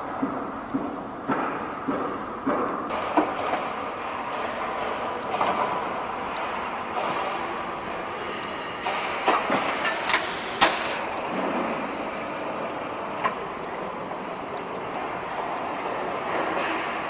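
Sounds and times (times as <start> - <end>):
rumbling background noise: 0.0 - 17.0
sharp knocks and clacks: 0.2 - 7.5.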